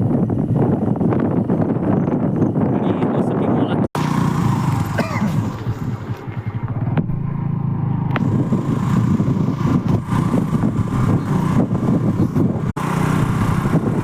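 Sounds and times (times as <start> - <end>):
engine running: 4.0 - 14.0.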